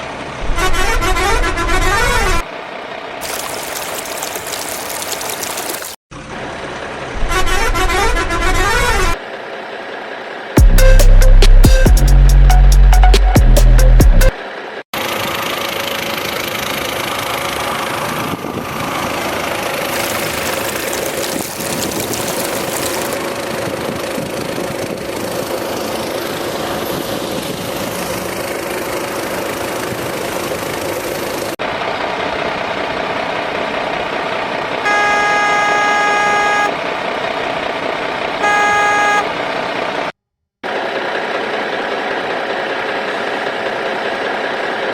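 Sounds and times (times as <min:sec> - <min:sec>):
vehicle horn honking: 0:00.5 - 0:02.3, 0:07.2 - 0:09.1, 0:34.8 - 0:36.8, 0:38.4 - 0:39.4
steady mechanical running noise: 0:15.0 - 0:26.5.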